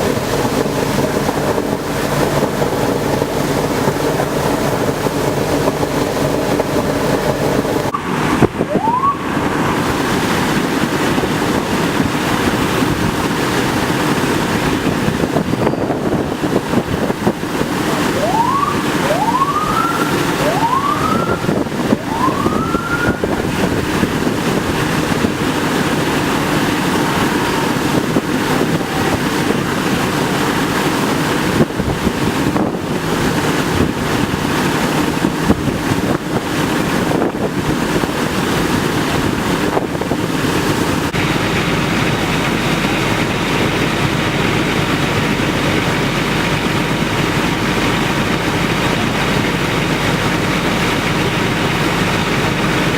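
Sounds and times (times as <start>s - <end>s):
water gushing from hydrant: 0.0s - 52.9s
emergency siren whoops: 7.9s - 10.0s, 17.8s - 24.1s, 26.3s - 30.5s.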